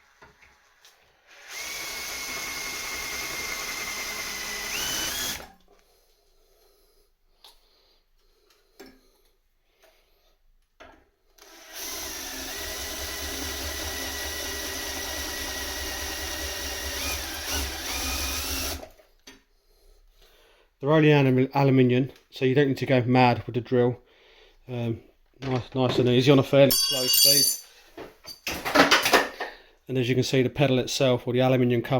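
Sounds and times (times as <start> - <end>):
electric drill whining: 0.1 - 5.6, 11.4 - 19.0.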